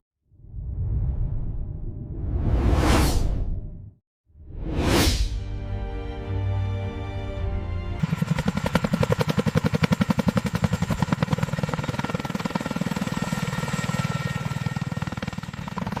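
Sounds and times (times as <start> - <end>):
helicopter rotor blades chopping: 8.0 - 16.0.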